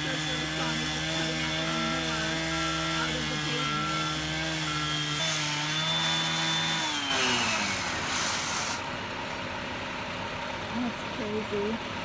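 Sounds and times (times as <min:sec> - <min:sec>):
saw cutting pavement: 0:00.0 - 0:09.5
steady machinery noise: 0:00.0 - 0:12.0.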